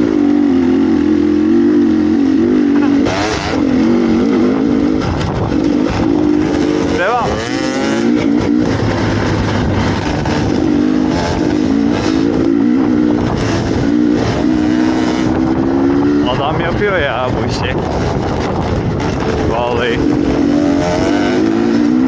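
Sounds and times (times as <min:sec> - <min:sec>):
dirt bike engine revving: 0:00.0 - 0:22.0
person speaking: 0:16.2 - 0:17.8.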